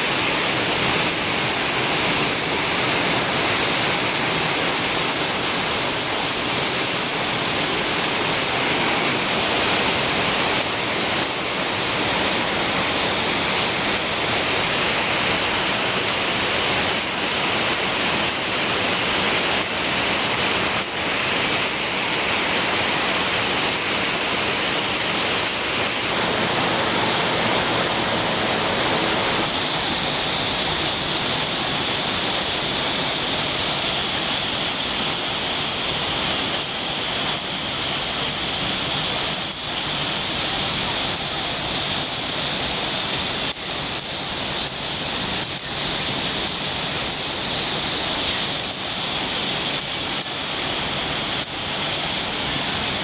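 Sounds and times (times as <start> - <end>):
heavy rain pouring: 0.0 - 53.0
strong wind rumbling: 24.3 - 31.4.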